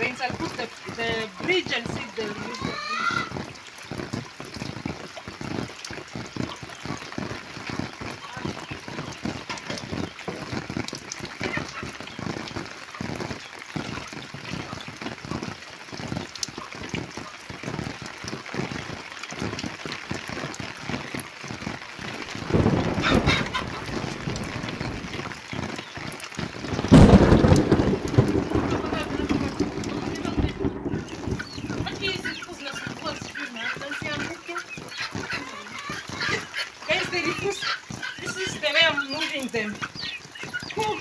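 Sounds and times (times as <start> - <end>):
chickens clucking: 0.0 - 4.9, 6.4 - 15.4, 22.0 - 26.0, 26.7 - 41.0
rain pattering: 0.0 - 41.0.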